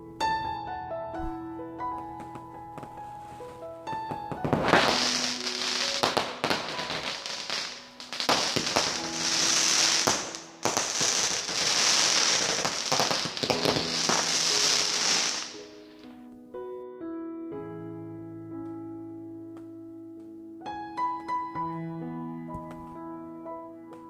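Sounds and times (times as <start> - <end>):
fireworks crackling: 3.3 - 16.0
fireworks pops and bangs: 3.9 - 15.8.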